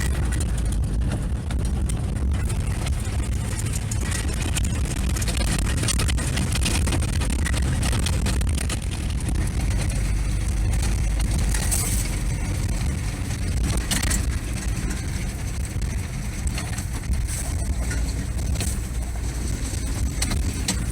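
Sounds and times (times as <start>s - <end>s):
vehicle engine and road noise: 0.0s - 20.9s.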